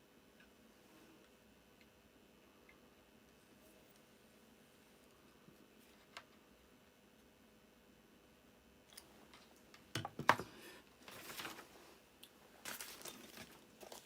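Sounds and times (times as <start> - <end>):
rustling of parts and tools: 8.9 - 14.0.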